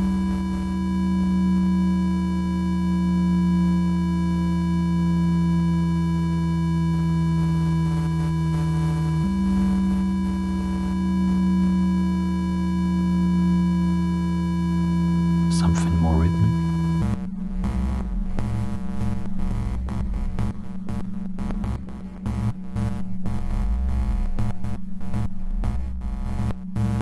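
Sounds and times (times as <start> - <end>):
low synthesizer drone: 8.3 - 18.3.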